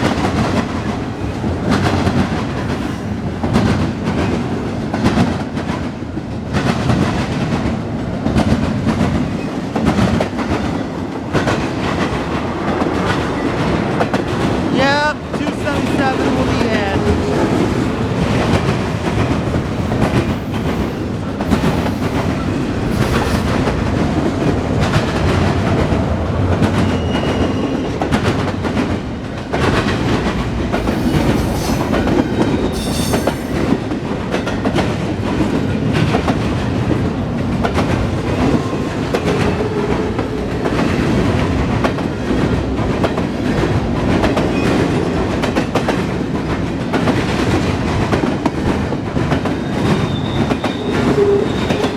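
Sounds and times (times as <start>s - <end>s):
freight train rumbling: 0.0s - 51.9s
wheels clacking over rail joints: 15.3s - 51.9s
high squeal: 30.8s - 33.7s, 49.9s - 51.9s.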